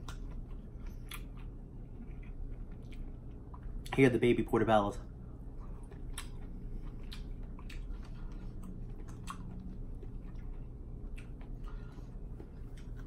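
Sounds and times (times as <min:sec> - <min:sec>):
wet mouth clicks: 0:05.9 - 0:07.9.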